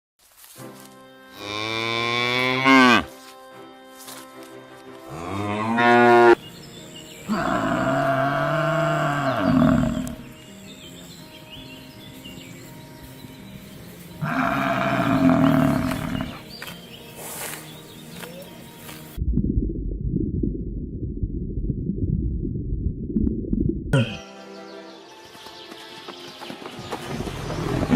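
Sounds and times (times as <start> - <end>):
cattle mooing: 1.5 - 3.1, 5.1 - 6.4, 7.3 - 10.2, 14.2 - 16.4.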